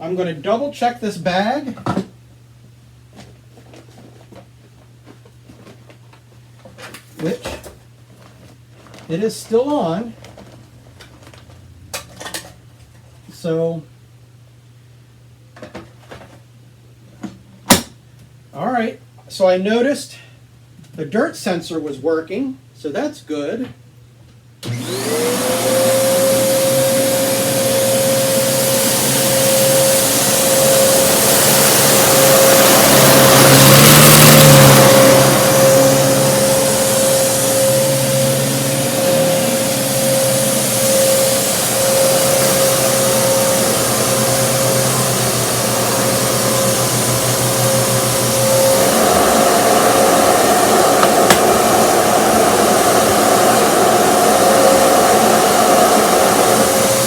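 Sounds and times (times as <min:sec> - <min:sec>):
vacuum cleaner motor whine: 0:24.6 - 0:57.0.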